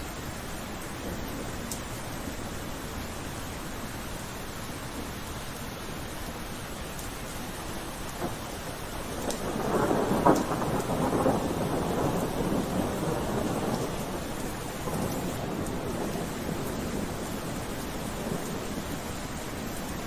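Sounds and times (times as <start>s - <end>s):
steady rain: 0.0s - 20.0s
thunder rumbling: 8.1s - 20.0s.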